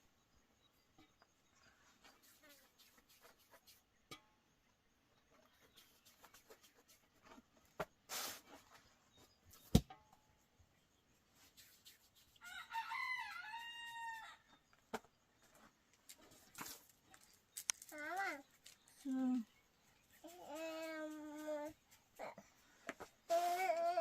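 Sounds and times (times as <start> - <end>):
rustle: 5.3 - 10.0, 15.0 - 24.0
rooster crowing: 12.4 - 14.4.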